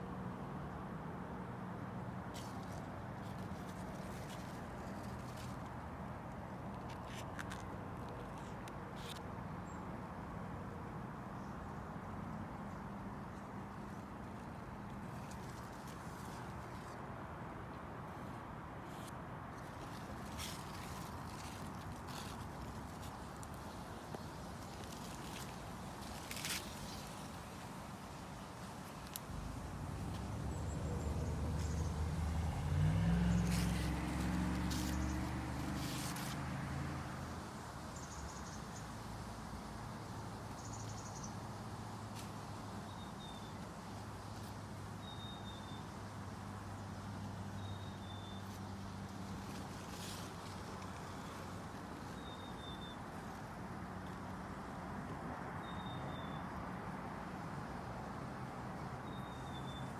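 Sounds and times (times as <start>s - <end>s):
low engine hum: 29.2s - 37.6s.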